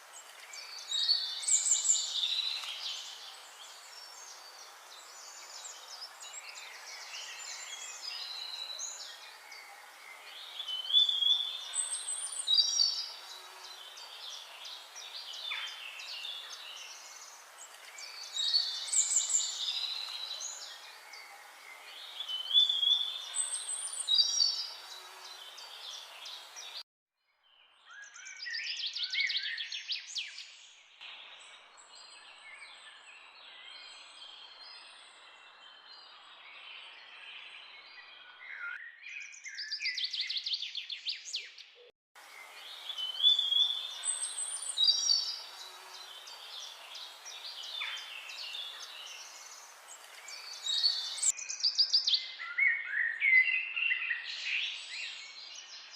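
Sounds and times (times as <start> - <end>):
faint background hiss: 0.0 - 26.8, 42.2 - 51.3
songbirds singing: 0.0 - 26.8, 27.5 - 55.9.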